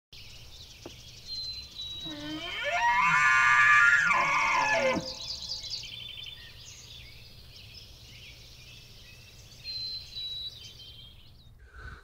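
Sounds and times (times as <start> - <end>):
songbirds chirping: 0.2 - 12.0
high bird trill: 1.3 - 6.2.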